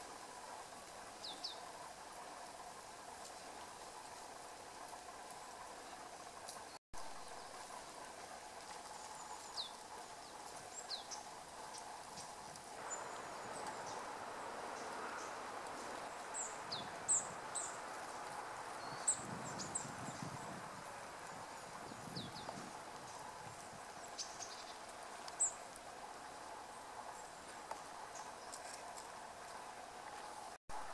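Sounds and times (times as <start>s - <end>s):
small birds calling: 0.0s - 1.8s, 8.8s - 30.5s
outdoor background hiss: 0.0s - 30.9s.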